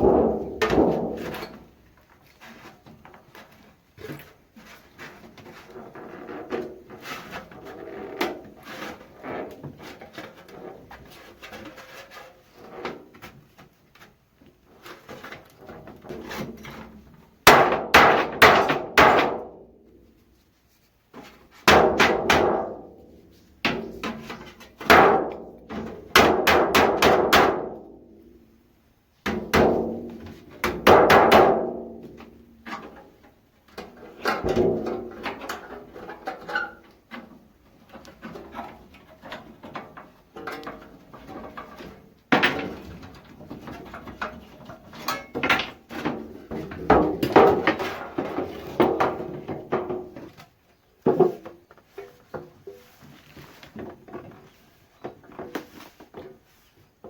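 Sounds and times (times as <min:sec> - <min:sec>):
hammer striking sheet metal can: 0:17.5 - 0:19.5, 0:24.8 - 0:25.4, 0:26.1 - 0:27.8, 0:30.6 - 0:31.8.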